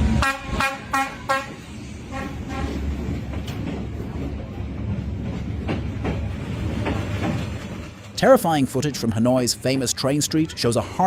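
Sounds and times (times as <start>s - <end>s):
train rumbling: 0.0s - 11.0s
short train horn toot: 0.2s - 2.8s.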